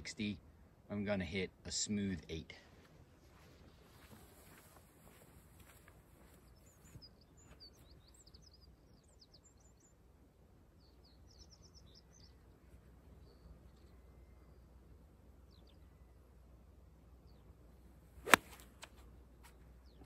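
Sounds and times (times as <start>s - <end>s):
low steady background rumble: 0.0s - 20.0s
faint high bird chirps: 6.2s - 10.0s, 10.8s - 14.8s.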